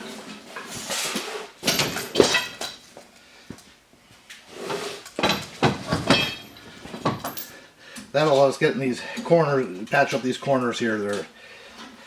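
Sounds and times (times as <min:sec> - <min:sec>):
metal tools clanking against steel: 0:05.2 - 0:07.6.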